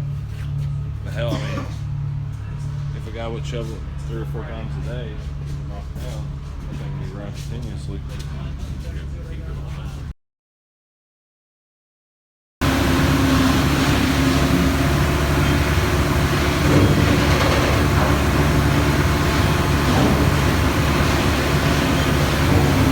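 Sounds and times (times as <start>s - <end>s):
heavy machinery droning: 12.6s - 22.9s.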